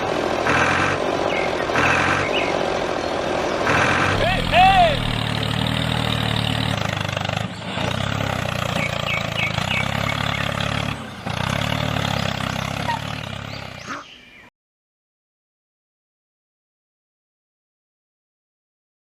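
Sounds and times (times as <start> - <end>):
engine running with fast pulse: 0.0 - 14.4.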